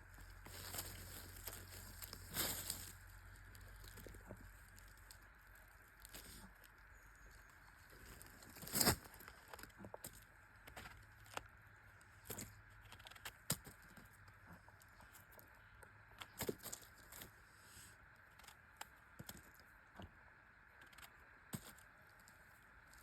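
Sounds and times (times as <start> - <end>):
faint steady hiss: 0.0 - 10.9
twigs and leaves crackling: 0.0 - 23.0.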